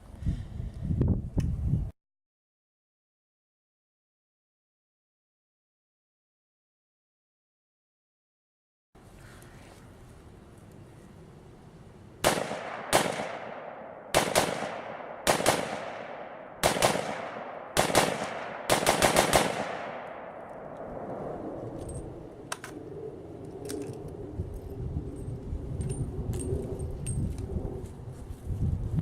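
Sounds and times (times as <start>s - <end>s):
rifle shots with echo: 12.2s - 21.1s.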